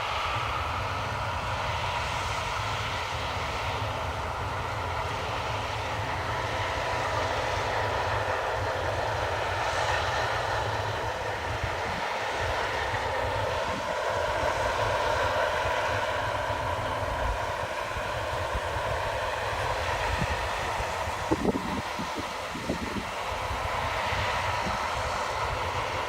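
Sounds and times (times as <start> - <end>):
combine harvester running: 0.0 - 26.0.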